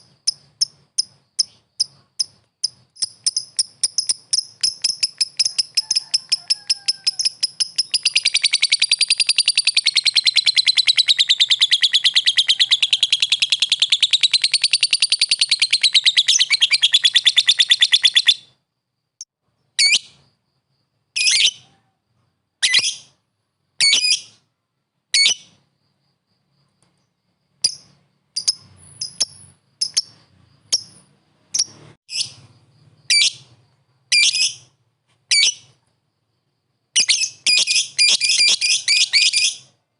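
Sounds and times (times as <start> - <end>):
lovebird chattering trill: 0.0 - 18.5, 27.6 - 32.4, 37.0 - 39.7.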